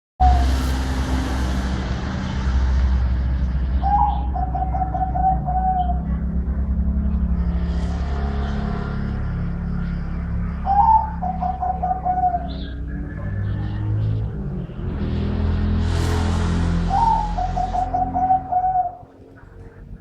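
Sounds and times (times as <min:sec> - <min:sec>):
steady low rumble: 0:00.2 - 0:20.0
dove cooing: 0:03.8 - 0:06.3, 0:10.6 - 0:14.6, 0:16.9 - 0:20.0.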